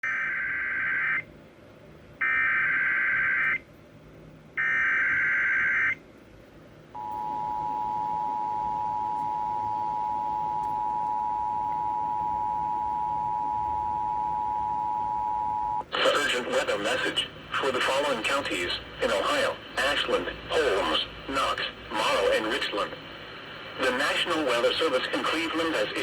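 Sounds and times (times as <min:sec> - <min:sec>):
steady two-tone attention signal: 0:07.0 - 0:15.8.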